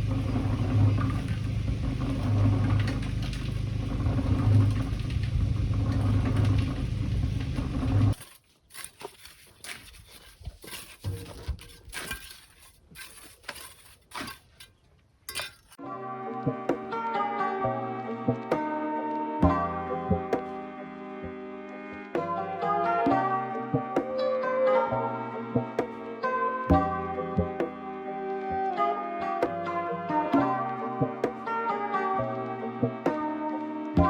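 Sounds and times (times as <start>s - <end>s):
engine running with low hum: 0.0s - 8.2s.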